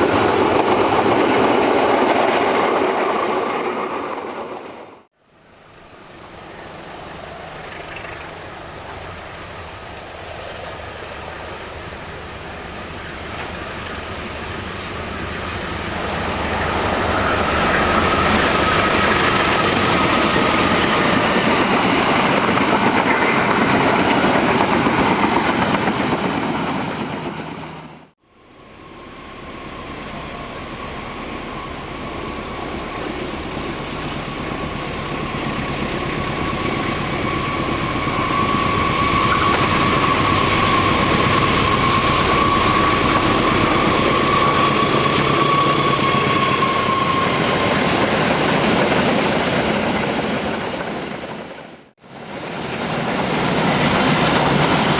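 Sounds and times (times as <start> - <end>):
train wheels squealing: 0.0 - 2.0, 13.3 - 24.3, 28.7 - 50.2
train wheels rumbling on rails: 0.0 - 5.1, 8.6 - 28.2, 28.8 - 54.9.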